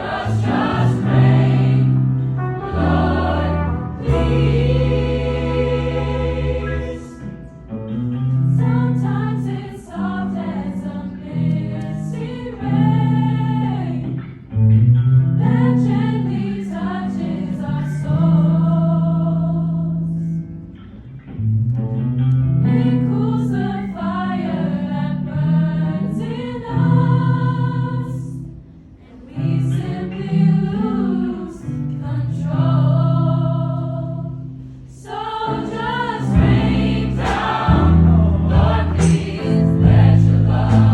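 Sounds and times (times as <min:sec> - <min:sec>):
a cappella vocal ensemble singing: 0:00.0 - 0:14.6, 0:15.3 - 0:20.5, 0:22.6 - 0:40.9.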